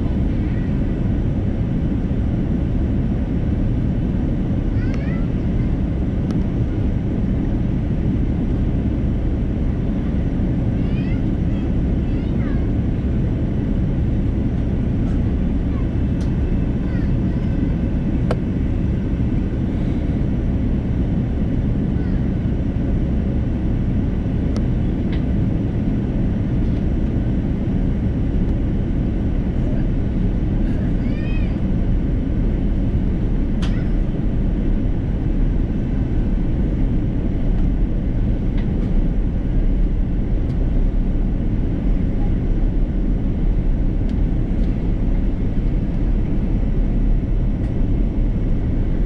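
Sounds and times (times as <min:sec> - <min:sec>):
airliner cabin engine rumble: 0:00.0 - 0:49.0.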